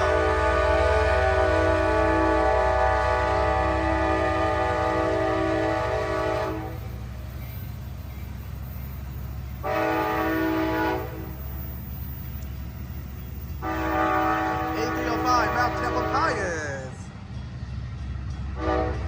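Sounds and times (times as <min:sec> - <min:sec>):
locomotive air horn: 0:00.0 - 0:06.9, 0:09.6 - 0:11.4, 0:13.6 - 0:16.9, 0:18.6 - 0:19.0
low diesel rumble: 0:00.0 - 0:19.0.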